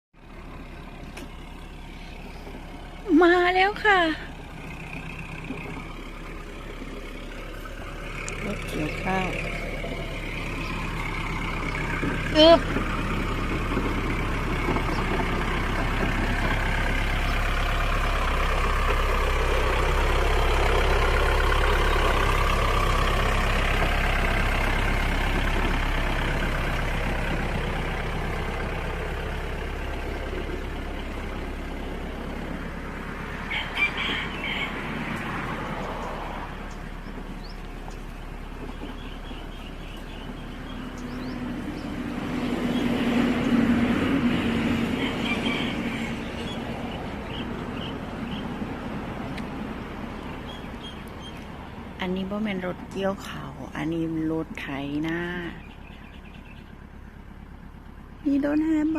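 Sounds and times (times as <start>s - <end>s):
tractor engine running: 0.1s - 58.9s
rooster crowing: 33.4s - 35.4s, 44.7s - 46.8s.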